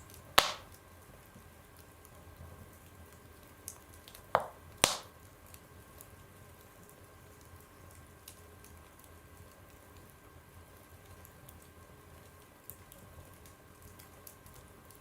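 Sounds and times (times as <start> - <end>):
wood fire crackling: 0.0 - 15.0
sharp loud pops from fire: 0.4 - 0.7, 4.4 - 5.1.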